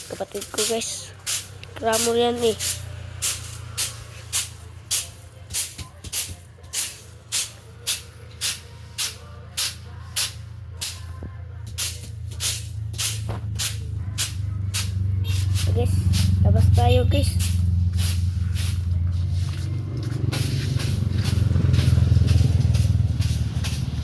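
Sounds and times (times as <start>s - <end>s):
hand tool rasping strokes: 0.0s - 11.0s.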